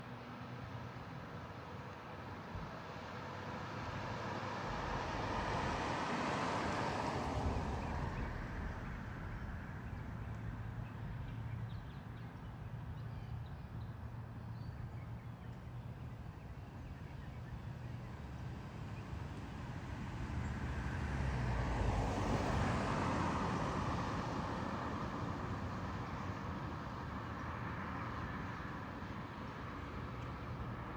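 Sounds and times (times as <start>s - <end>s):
roadway hum: 0.0s - 30.9s
vehicle passing by: 3.6s - 11.4s.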